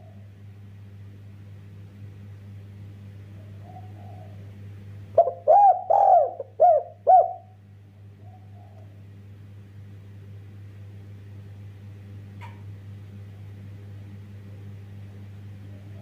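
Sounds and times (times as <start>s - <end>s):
dove cooing: 3.4s - 4.5s, 5.1s - 7.6s, 8.2s - 9.0s.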